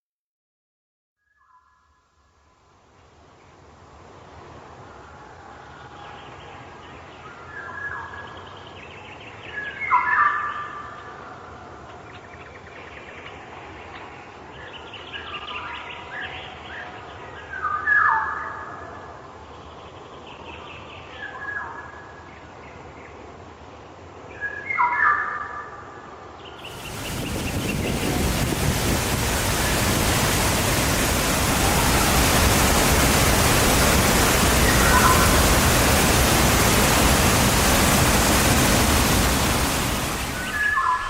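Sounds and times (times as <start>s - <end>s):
songbird singing: 26.4s - 32.6s, 39.4s - 41.0s
loud even rushing noise: 26.6s - 41.0s.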